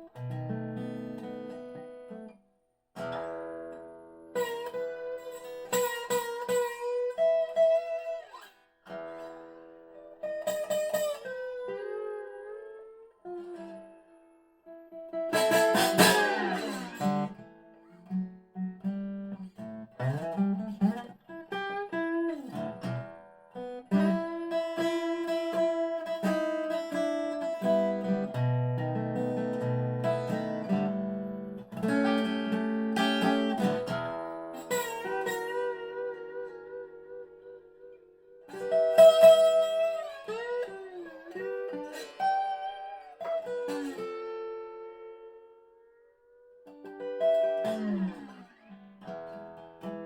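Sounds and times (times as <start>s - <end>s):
resonator guitar with slide: 3.0s - 50.0s
strummed guitar chord: 15.2s - 17.6s.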